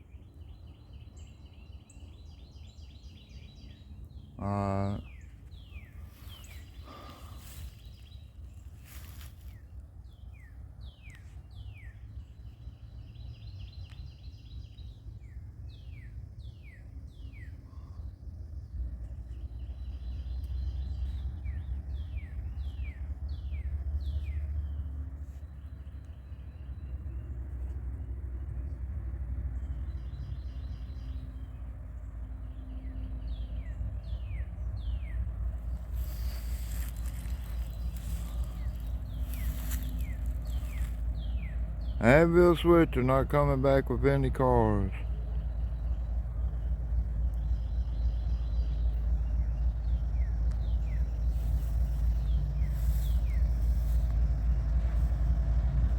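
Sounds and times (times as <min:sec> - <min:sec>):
steady low rumble: 0:04.1 - 0:14.0, 0:33.3 - 0:55.9.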